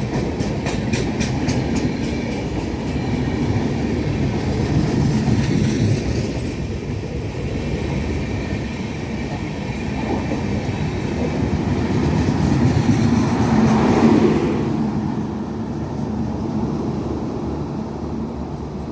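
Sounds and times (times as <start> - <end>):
wheels clickety-clack: 0.0 - 7.3, 9.2 - 14.7
train coaches rumbling past: 0.0 - 18.9.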